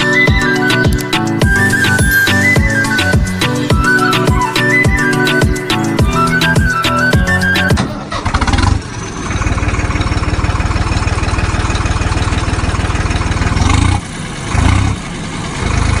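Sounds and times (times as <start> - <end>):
engine running with firing pulses: 0.0 - 16.0.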